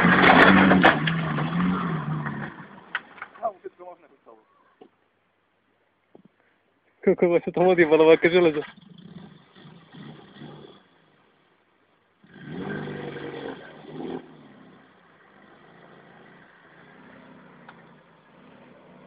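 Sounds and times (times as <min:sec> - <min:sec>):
car engine revving: 0:00.0 - 0:03.2, 0:08.0 - 0:11.2, 0:12.2 - 0:19.0.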